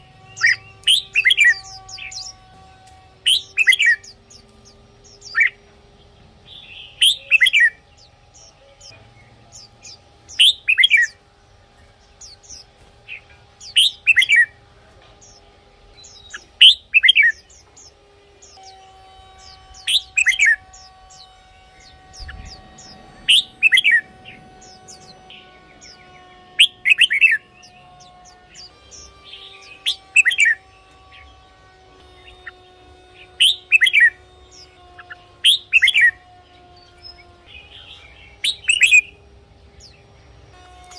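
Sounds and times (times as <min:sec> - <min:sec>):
bird singing whistled phrases: 0:00.3 - 0:02.4, 0:03.3 - 0:04.2, 0:06.5 - 0:07.8, 0:09.8 - 0:11.2, 0:13.6 - 0:14.5, 0:16.0 - 0:17.7, 0:19.4 - 0:25.2, 0:28.6 - 0:30.6, 0:33.4 - 0:36.2, 0:37.5 - 0:39.1.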